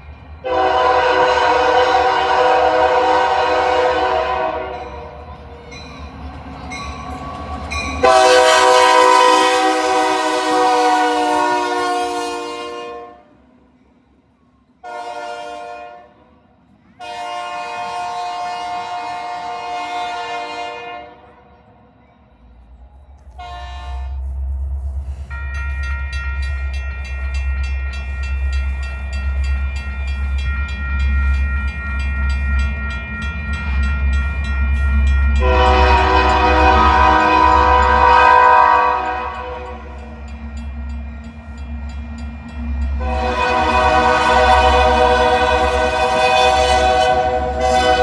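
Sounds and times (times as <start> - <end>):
locomotive air horn blasts: 0.4 - 5.1, 8.0 - 13.3, 14.8 - 16.1, 17.0 - 21.4, 23.3 - 24.2, 35.4 - 40.0, 43.0 - 48.0
low engine rumble: 22.3 - 30.4.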